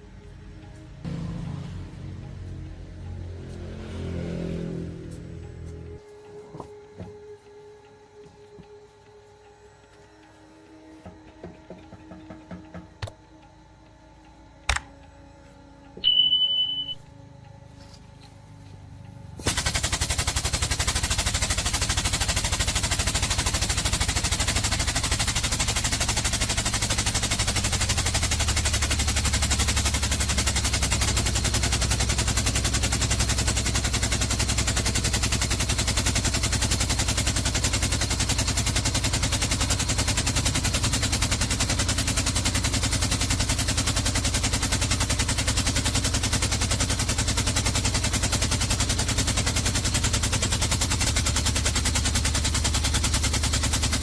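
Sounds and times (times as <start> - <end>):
pneumatic hammer rattling on metal: 19.4 - 54.0.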